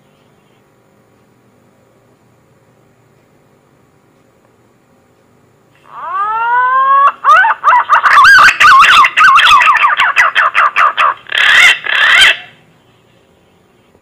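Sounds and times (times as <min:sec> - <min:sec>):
pigeon call whistles: 0:07.3 - 0:12.5.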